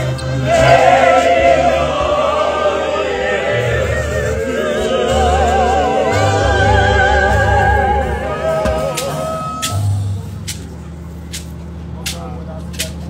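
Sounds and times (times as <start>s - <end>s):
voices singing with vibrato: 0.0s - 9.9s
bass line: 0.0s - 10.5s.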